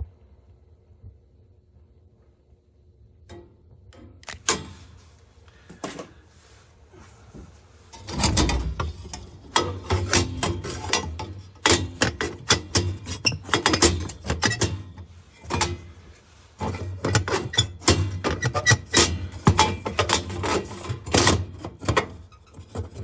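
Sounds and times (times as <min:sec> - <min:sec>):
clattering clicks and knocks: 0:07.9 - 0:15.9.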